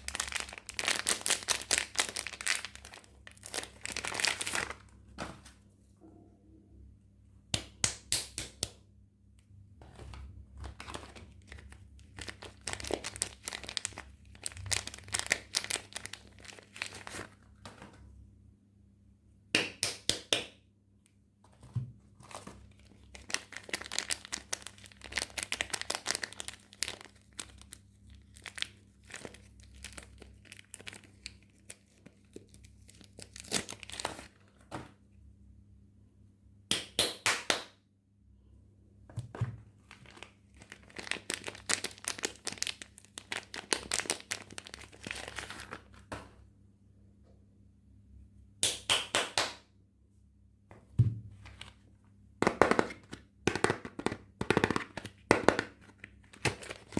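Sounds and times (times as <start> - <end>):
wrapper crinkling and tearing: 0.0 - 4.9, 10.6 - 17.8, 22.2 - 34.6, 39.8 - 46.1, 52.5 - 56.9.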